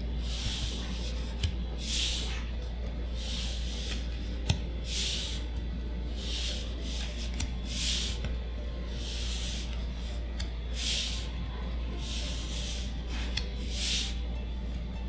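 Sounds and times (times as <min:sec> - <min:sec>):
cards sliding swish: 0:00.2 - 0:02.6, 0:03.2 - 0:05.5, 0:06.2 - 0:08.4, 0:09.0 - 0:11.4.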